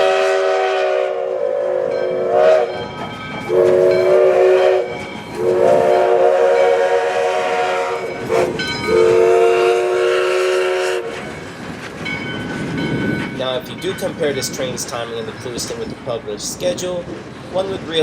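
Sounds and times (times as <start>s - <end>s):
steam locomotive chime whistle: 0.0s - 11.5s.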